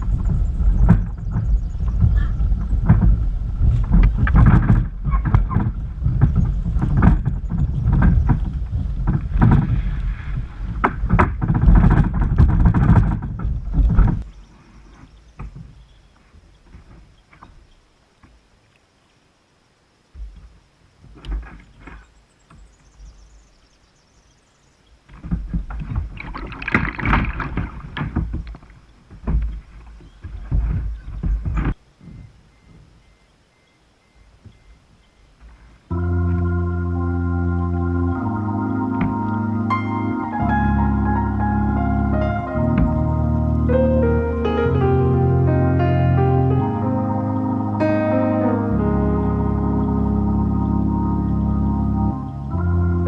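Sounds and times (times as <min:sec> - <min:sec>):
kayak hull and paddle splashing: 0:00.0 - 0:13.6, 0:25.4 - 0:31.4.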